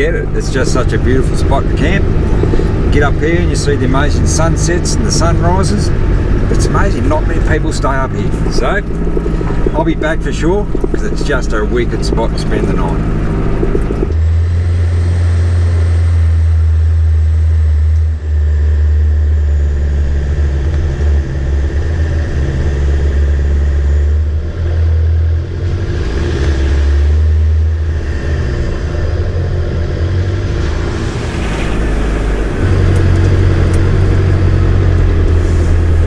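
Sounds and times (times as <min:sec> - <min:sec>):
vehicle engine and road noise: 0:00.0 - 0:36.0.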